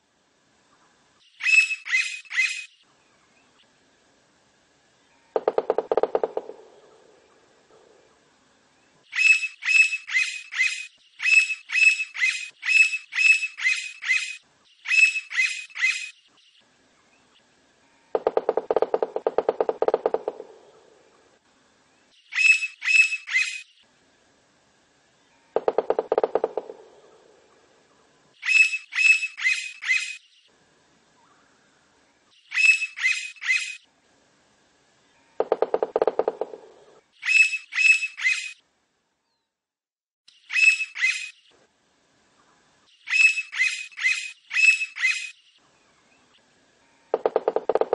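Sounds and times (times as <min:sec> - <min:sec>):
woodpecker high repeated calls: 0:01.3 - 0:02.9, 0:05.2 - 0:08.1, 0:09.1 - 0:16.3, 0:18.1 - 0:21.3, 0:22.2 - 0:23.7, 0:25.5 - 0:27.7, 0:28.4 - 0:30.3, 0:32.4 - 0:33.9, 0:35.2 - 0:38.6, 0:40.3 - 0:41.6, 0:43.0 - 0:45.6, 0:46.9 - 0:47.9
woodpecker fast rattle: 0:05.4 - 0:07.0, 0:18.2 - 0:20.9, 0:25.6 - 0:27.3, 0:35.4 - 0:38.5, 0:47.1 - 0:47.9.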